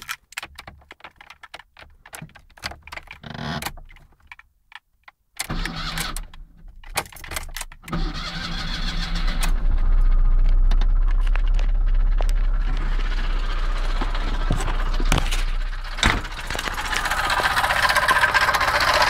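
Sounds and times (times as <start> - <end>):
car engine cranking and running: 5.4 - 19.0.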